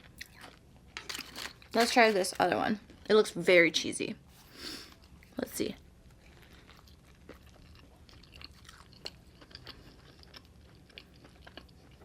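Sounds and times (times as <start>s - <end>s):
person chewing food: 0.0s - 1.7s, 6.1s - 12.0s.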